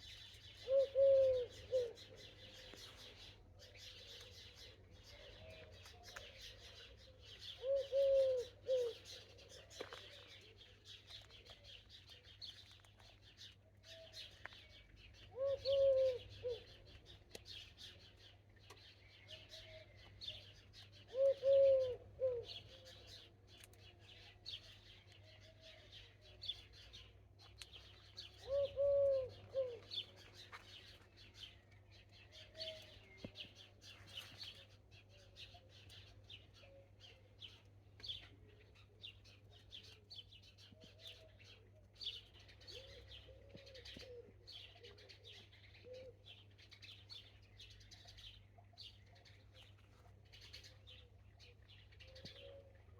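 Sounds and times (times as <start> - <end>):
small songbirds chirping: 0.0 - 52.9
pigeon cooing: 0.6 - 2.0, 7.6 - 9.0, 15.4 - 16.7, 21.1 - 22.8, 28.4 - 29.9, 42.7 - 46.2.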